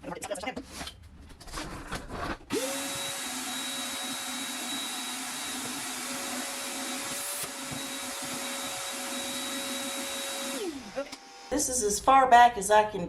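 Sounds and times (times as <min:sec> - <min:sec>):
power tool motor running: 0:02.5 - 0:11.6.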